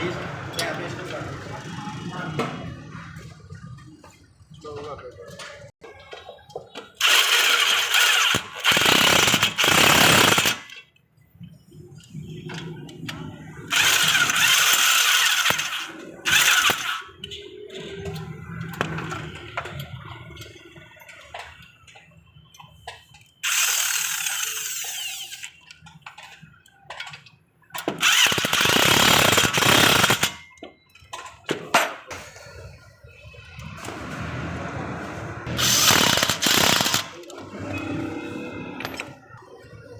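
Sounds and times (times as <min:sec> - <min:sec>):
power tool running in bursts: 0:28.0 - 0:30.3, 0:35.5 - 0:37.1.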